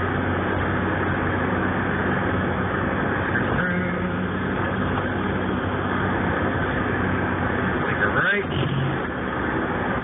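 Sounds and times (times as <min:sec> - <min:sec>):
car engine hum: 0:00.0 - 0:10.0
road and tyre noise: 0:00.0 - 0:10.0.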